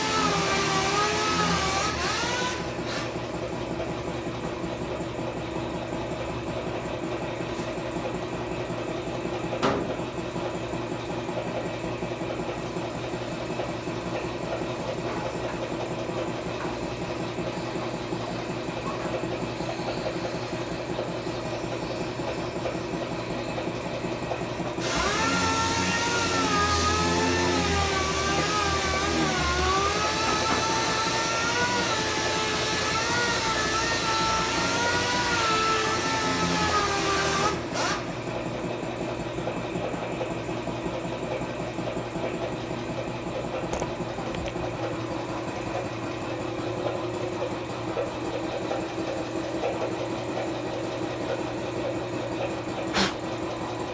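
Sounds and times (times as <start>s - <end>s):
power tool whining: 0.0s - 3.4s, 24.6s - 38.4s, 52.9s - 53.4s
steady machine hum: 37.5s - 53.9s.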